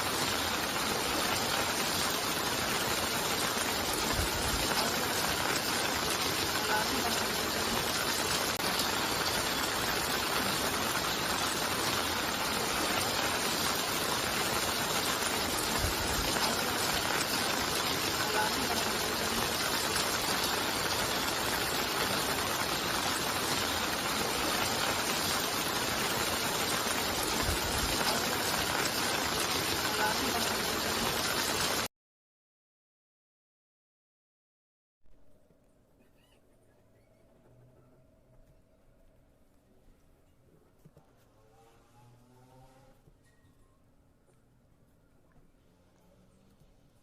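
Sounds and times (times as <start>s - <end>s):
storm water rushing: 0.0s - 31.9s.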